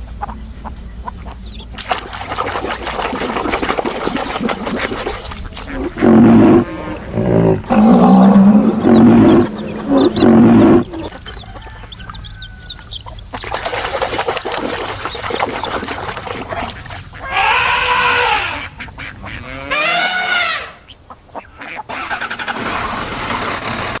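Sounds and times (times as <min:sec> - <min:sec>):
deep animal roars: 0:05.7 - 0:11.1
animal cries rising and falling: 0:17.2 - 0:18.7.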